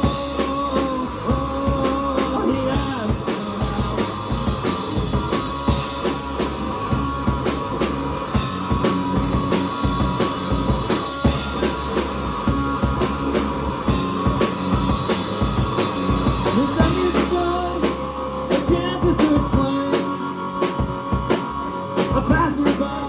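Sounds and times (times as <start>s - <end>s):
bass guitar: 0.0s - 23.0s
drum kit: 0.0s - 23.0s
electric guitar: 0.0s - 23.0s.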